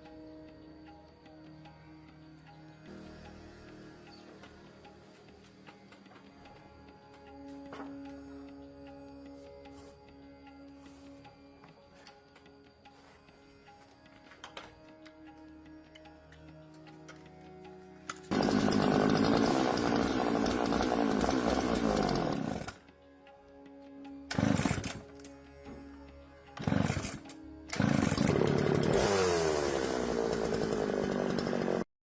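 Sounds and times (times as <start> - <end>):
soft background music: 0.0 - 18.3, 22.1 - 28.9
chainsaw engine revving: 18.1 - 22.9, 24.3 - 25.3, 26.6 - 31.9.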